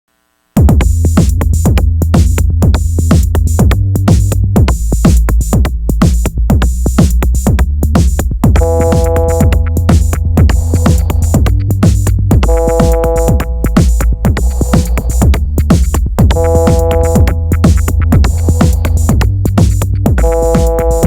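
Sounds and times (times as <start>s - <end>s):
deep bass: 0.6s - 21.0s
drum machine beat: 0.6s - 21.0s
synthesizer acid line: 8.5s - 21.0s
held synth chord: 8.6s - 9.5s.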